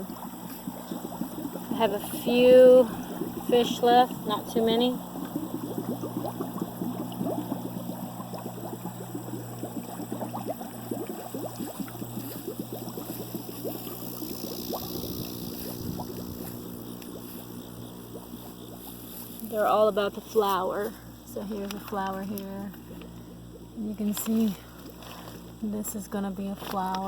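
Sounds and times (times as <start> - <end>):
small splashes and crackles: 0.0 - 27.0
steady low hum: 0.0 - 27.0
water trickling and gurgling: 0.0 - 27.0.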